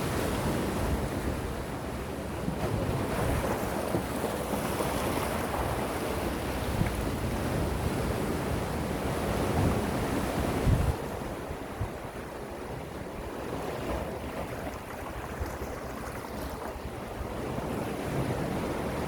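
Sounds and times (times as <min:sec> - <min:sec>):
sea waves washing on shore: 0:00.0 - 0:19.0
wind rumbling on microphone: 0:00.0 - 0:19.0.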